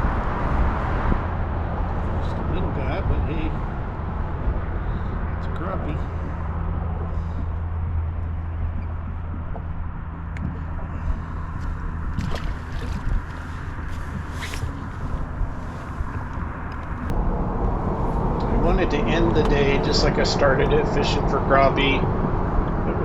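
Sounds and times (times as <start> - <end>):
boat motor humming: 0.0 - 23.0
water sloshing and gurgling: 3.5 - 17.1.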